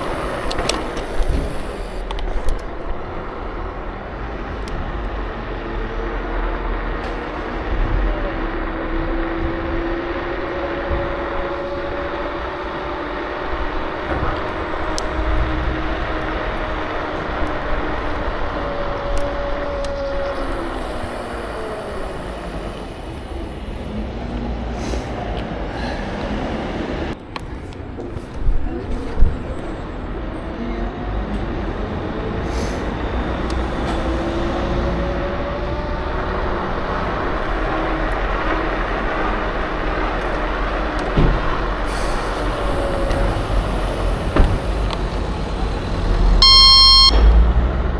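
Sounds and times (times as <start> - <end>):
electric scooter motor whine: 0.0 - 24.3
road rumble: 0.0 - 47.9
wind: 0.0 - 47.9
faint electric motor whine: 17.8 - 23.9.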